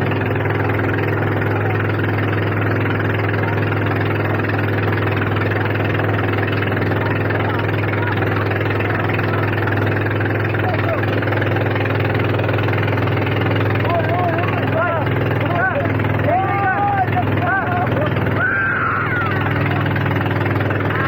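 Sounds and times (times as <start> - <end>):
motorboat engine running: 0.0 - 21.0.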